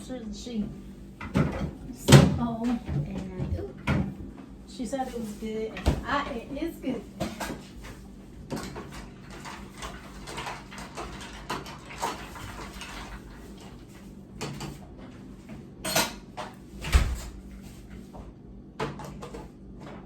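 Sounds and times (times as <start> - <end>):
dishes clinking and knocking: 1.2 - 4.2, 15.8 - 16.6.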